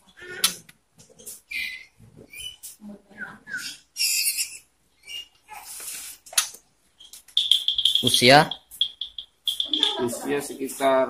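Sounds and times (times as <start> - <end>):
songbirds chirping: 6.9 - 10.7
harsh hissy bird calls: 7.4 - 10.2.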